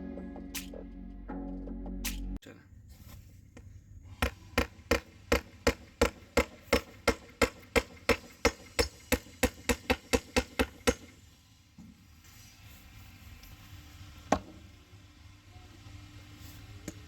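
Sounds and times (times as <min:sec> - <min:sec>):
hammer driving nails into wood: 0:04.1 - 0:11.2.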